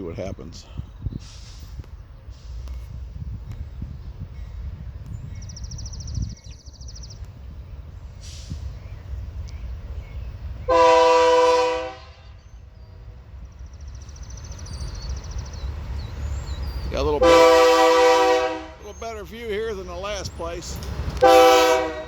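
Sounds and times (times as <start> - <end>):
locomotive air horn blast: 10.7 - 12.4, 17.2 - 18.9, 21.2 - 22.0.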